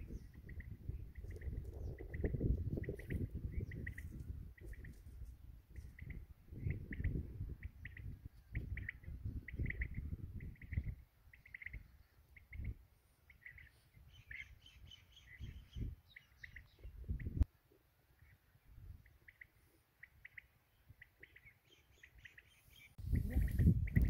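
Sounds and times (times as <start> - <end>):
birds calling: 5.8 - 17.5, 18.2 - 24.0.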